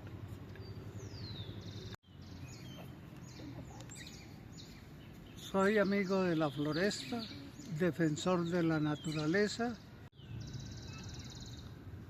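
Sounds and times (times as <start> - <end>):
small birds chirping: 0.4 - 12.0.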